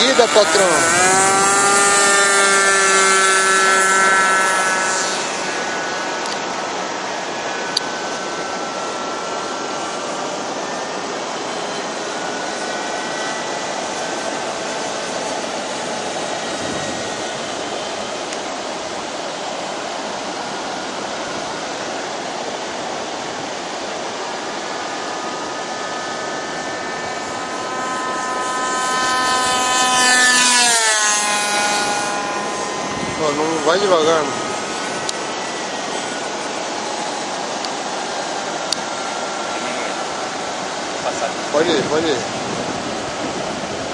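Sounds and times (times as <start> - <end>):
model airplane engine whining: 0.0 - 43.9
rushing wind: 0.0 - 43.9.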